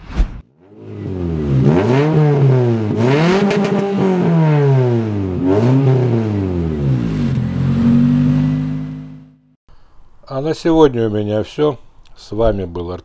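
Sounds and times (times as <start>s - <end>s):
car engine revving: 0.5s - 9.6s.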